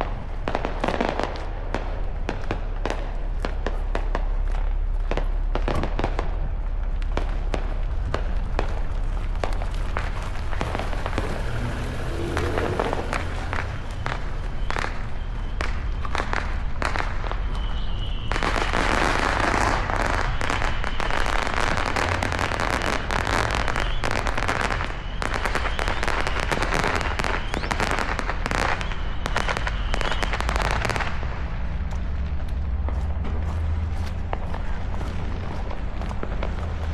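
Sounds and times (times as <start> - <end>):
steady low rumble: 0.0 - 17.4, 31.0 - 36.9
fireworks bangs and crackling pops: 0.0 - 36.9.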